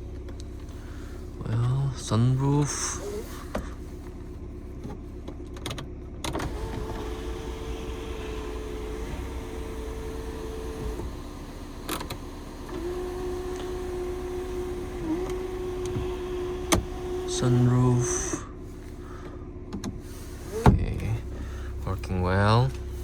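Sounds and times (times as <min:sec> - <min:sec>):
sunroof click: 0:05.7 - 0:18.0
electric sunroof motor whine: 0:06.4 - 0:19.2.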